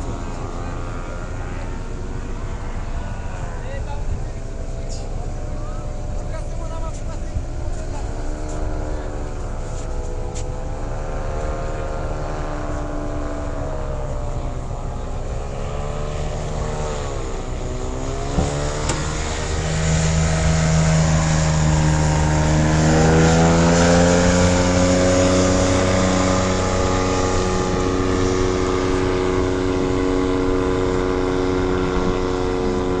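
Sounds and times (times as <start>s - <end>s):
vehicle engine revving: 0.0s - 33.0s.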